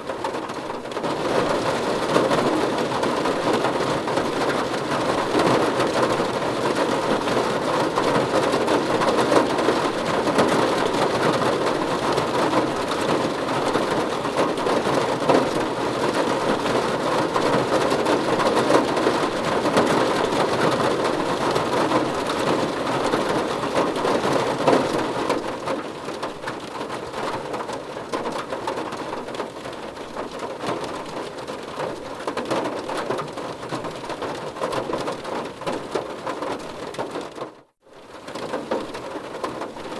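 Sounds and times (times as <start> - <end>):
heavy rainfall: 0.0 - 39.9.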